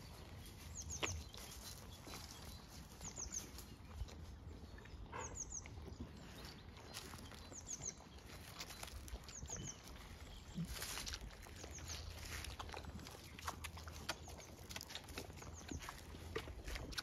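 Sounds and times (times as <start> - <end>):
rustles and steps in leaf litter: 8.2 - 13.3.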